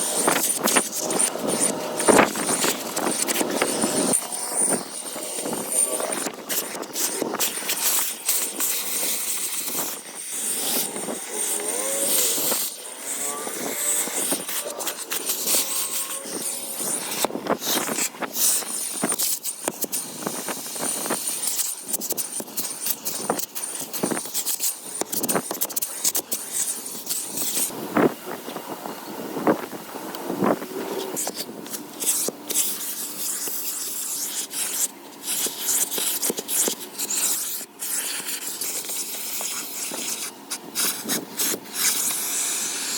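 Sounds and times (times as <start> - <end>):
thin high whine: 0.0 - 21.6.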